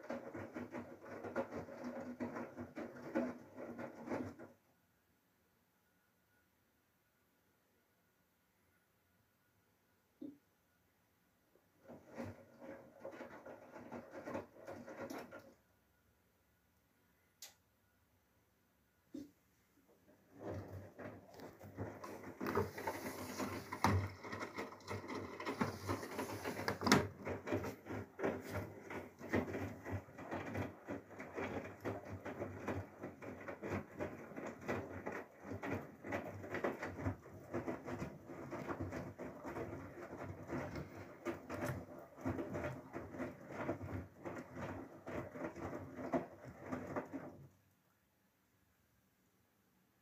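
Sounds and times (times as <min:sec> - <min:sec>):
washing machine hum: 0:00.0 - 0:04.8, 0:11.5 - 0:16.4, 0:19.1 - 0:48.0.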